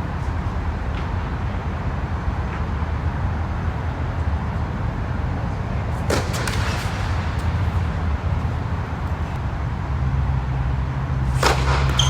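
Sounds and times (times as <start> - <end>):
low outdoor rumble: 0.0 - 12.0
tennis ball knocks: 5.9 - 9.4, 11.3 - 12.0.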